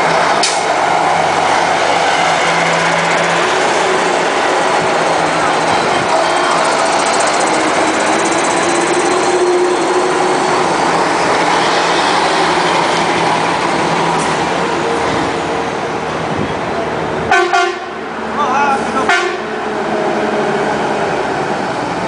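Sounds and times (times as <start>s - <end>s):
crowd voices: 0.0s - 13.0s
truck engines running: 0.0s - 22.0s
vehicle horn: 17.3s - 18.0s, 19.0s - 19.6s.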